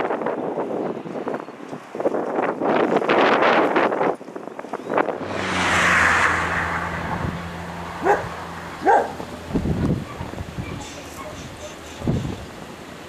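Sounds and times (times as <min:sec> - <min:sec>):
wind gusting on microphone: 0:00.0 - 0:13.0
jet airliner engines landing: 0:04.4 - 0:13.0.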